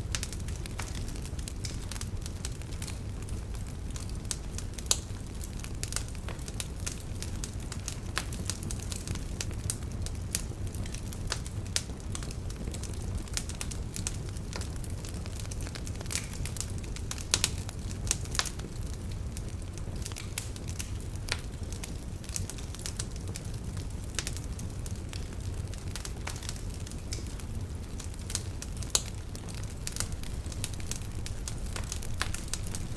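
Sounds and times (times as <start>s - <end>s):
wood fire crackling: 0.0s - 32.9s
logs popping and snapping: 28.9s - 32.9s.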